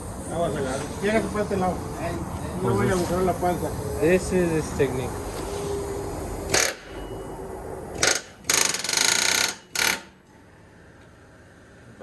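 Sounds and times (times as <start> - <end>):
steady background noise: 0.0 - 12.0
pneumatic air tool bursts: 6.1 - 7.2, 7.9 - 10.2.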